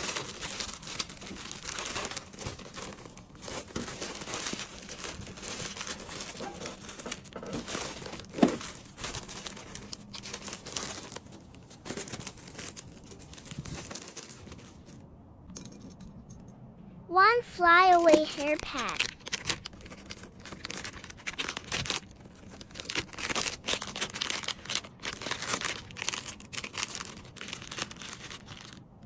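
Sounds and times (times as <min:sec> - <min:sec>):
packaging crinkling: 0:00.0 - 0:15.0, 0:17.9 - 0:28.9.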